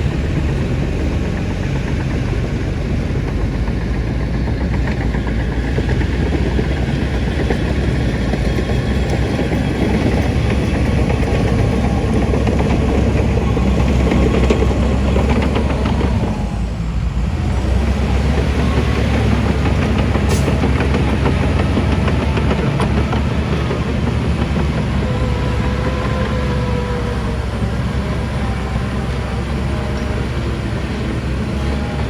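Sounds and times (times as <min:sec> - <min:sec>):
heavy diesel engine running: 0:00.0 - 0:32.0.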